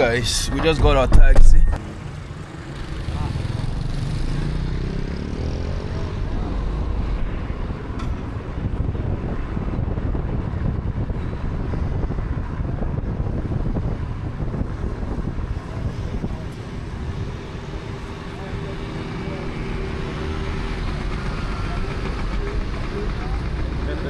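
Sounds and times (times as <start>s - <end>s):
wind noise: 0.0s - 1.8s, 7.4s - 17.2s
car engine and road rumble: 0.0s - 24.0s.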